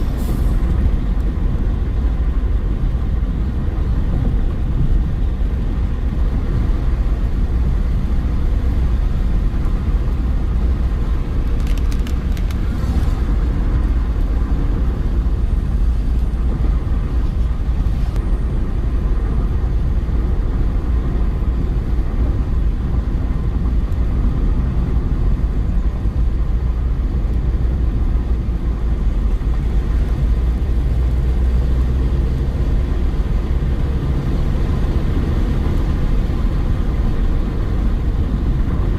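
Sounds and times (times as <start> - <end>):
car engine rumble: 0.0 - 38.9
road noise: 0.0 - 38.9.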